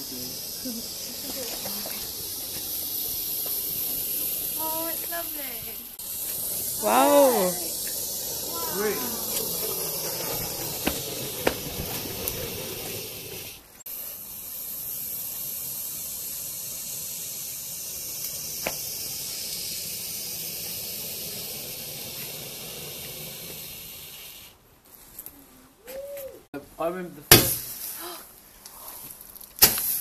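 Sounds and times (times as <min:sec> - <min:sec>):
sharp crackles: 0:00.0 - 0:13.8
firework fountain hissing: 0:00.0 - 0:24.6, 0:27.3 - 0:30.0.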